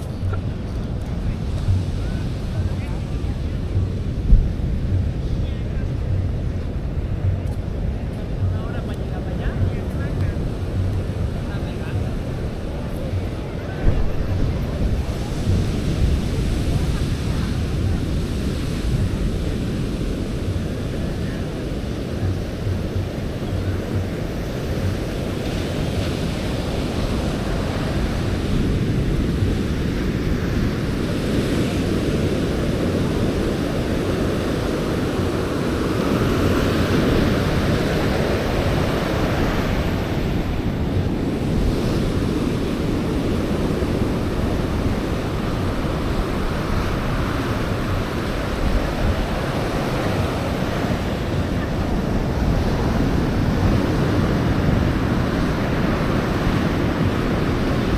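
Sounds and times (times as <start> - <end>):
surf breaking on beach: 0.0 - 57.9
wind buffeting microphone: 0.0 - 57.9.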